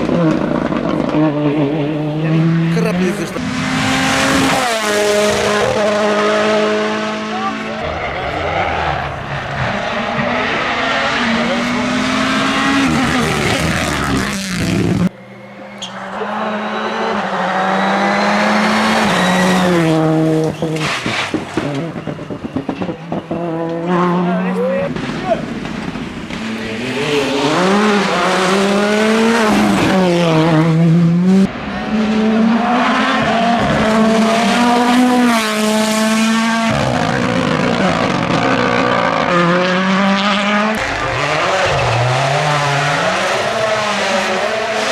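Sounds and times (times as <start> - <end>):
rally car engine at high revs: 0.0 - 44.9
quieter steady engine tone: 7.2 - 28.8.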